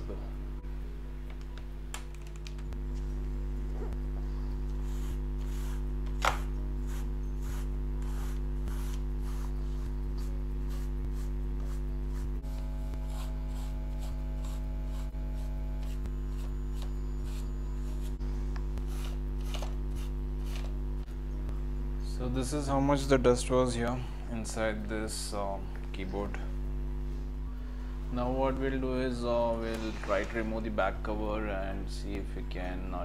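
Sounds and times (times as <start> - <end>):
steady low hum: 0.0 - 33.0
cleaning tool scratching keyboard: 4.8 - 18.2.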